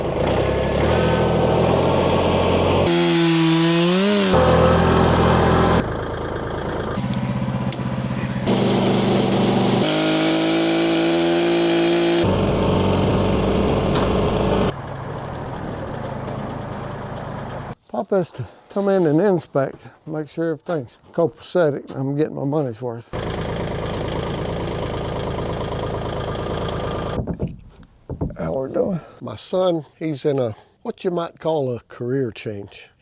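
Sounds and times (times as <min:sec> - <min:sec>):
chainsaw: 0:00.0 - 0:14.8, 0:23.2 - 0:27.2
engine revving: 0:00.0 - 0:17.8, 0:23.2 - 0:27.2
engine-powered machines running: 0:00.0 - 0:17.8, 0:23.2 - 0:27.3.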